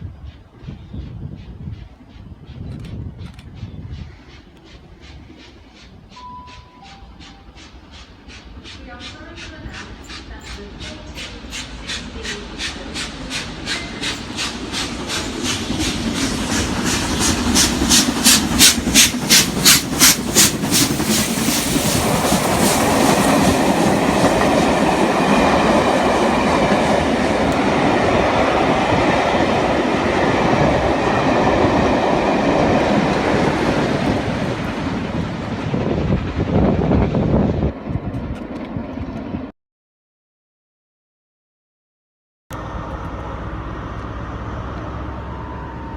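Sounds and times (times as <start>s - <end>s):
train wheels clicking over joints: 0.0s - 36.4s
train rolling rumble: 0.0s - 39.5s, 42.5s - 45.9s.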